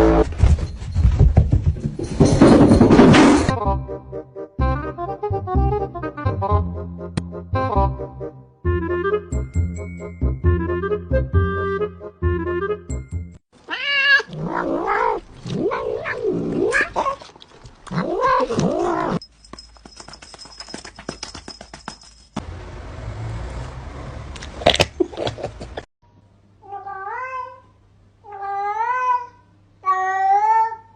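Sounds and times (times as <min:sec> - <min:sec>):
cat yowling: 0:13.7 - 0:17.2, 0:28.3 - 0:30.9.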